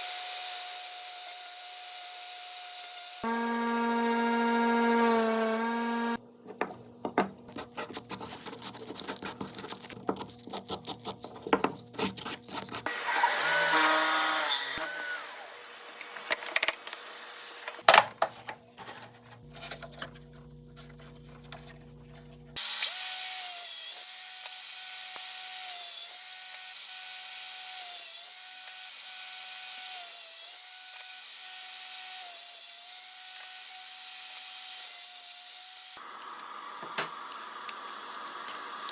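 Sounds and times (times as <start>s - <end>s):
power tool whining: 0.0s - 6.2s, 12.9s - 16.4s
machine hum: 3.2s - 6.2s.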